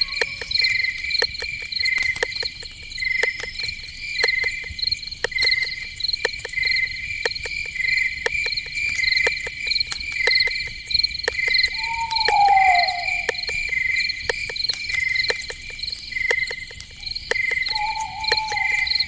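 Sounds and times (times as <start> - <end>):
crickets chirping: 0.0 - 19.0
sharp insect clicks: 0.0 - 19.0
downward sliding whistled call: 11.7 - 13.6, 17.7 - 19.0.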